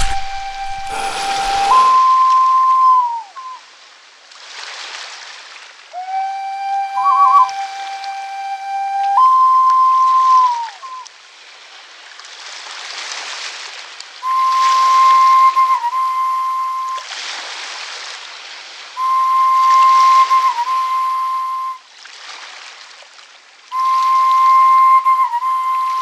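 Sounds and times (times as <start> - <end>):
pure whistle-like tone: 0.0 - 3.6, 5.9 - 11.1, 14.2 - 17.1, 19.0 - 21.8, 23.7 - 26.0
rushing water-like hiss: 0.0 - 26.0.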